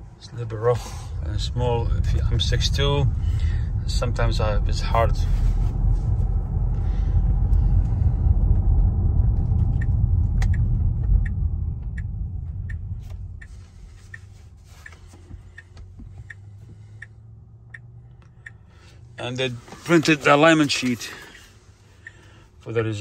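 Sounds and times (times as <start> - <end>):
road and tyre rumble in car: 0.0 - 23.0
light regular ticking: 5.8 - 19.5, 20.5 - 22.9.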